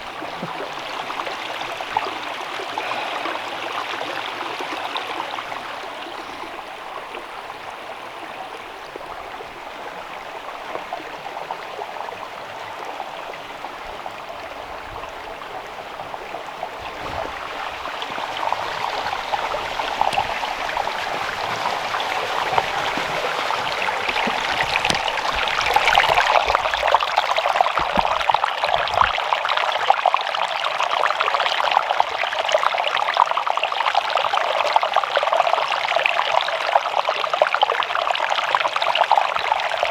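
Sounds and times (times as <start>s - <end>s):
water splashing over rocks: 0.0s - 6.4s, 15.3s - 32.3s.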